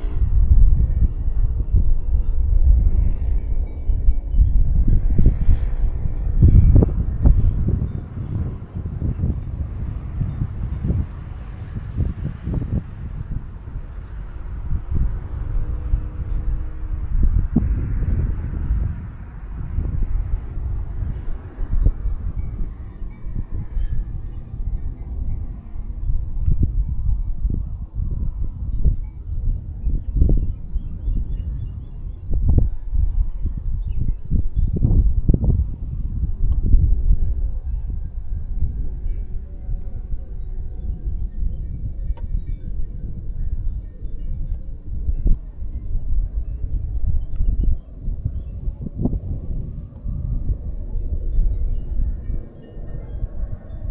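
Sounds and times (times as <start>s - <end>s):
crickets chirping: 0.0s - 53.9s
wind buffeting microphone: 0.0s - 53.9s.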